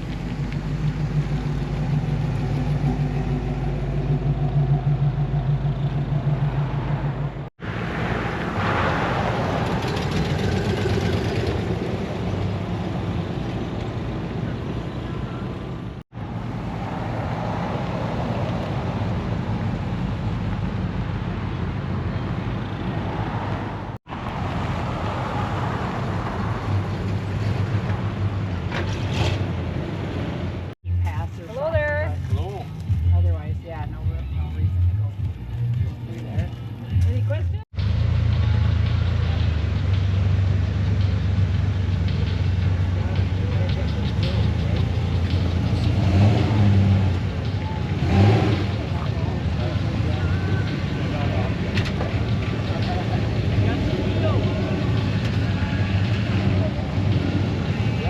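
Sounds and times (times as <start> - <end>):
car engine idling: 0.0 - 7.5
outdoor background noise: 0.0 - 58.0.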